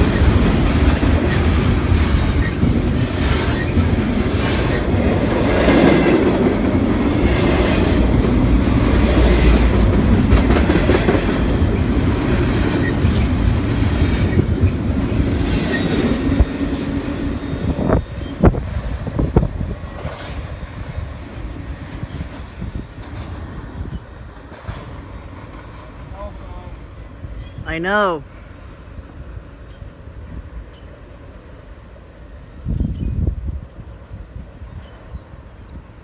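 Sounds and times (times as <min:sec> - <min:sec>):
wheels clacking over rail joints: 0:00.0 - 0:26.1
freight train rumbling past: 0:00.0 - 0:36.0.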